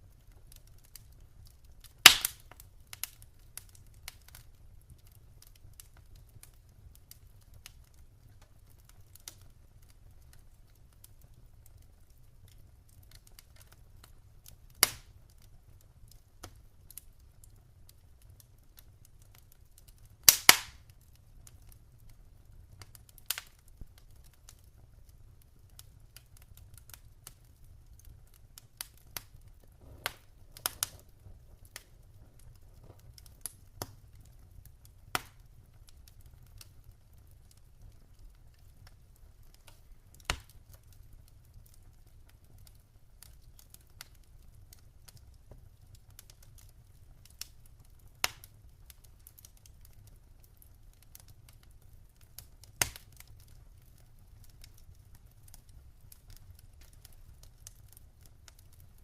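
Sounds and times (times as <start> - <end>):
wood fire crackling: 0.0 - 59.0
sharp pops and snaps: 0.4 - 4.5, 14.7 - 15.2, 18.8 - 21.7, 26.5 - 34.4, 35.1 - 35.5, 37.5 - 41.0, 48.1 - 50.1, 52.3 - 54.8
faint low rumble: 27.5 - 40.1.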